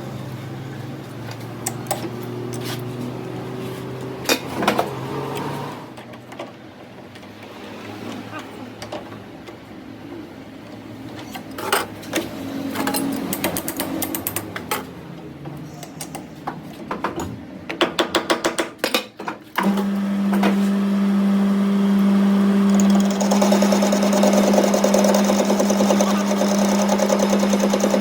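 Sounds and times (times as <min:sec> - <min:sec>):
electric power tool humming: 0:19.6 - 0:28.0.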